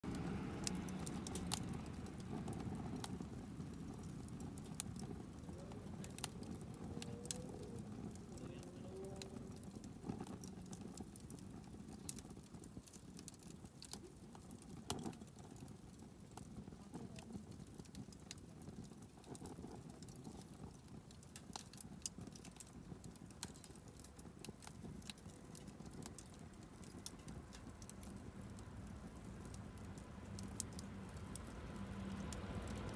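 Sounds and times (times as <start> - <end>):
wood fire crackling: 0.0 - 32.9.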